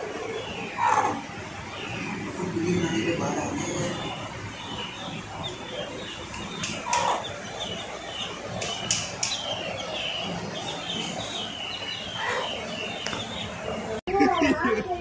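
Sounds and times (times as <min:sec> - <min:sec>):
birds chirping: 0:00.0 - 0:15.0
sharp clicks: 0:06.3 - 0:07.1.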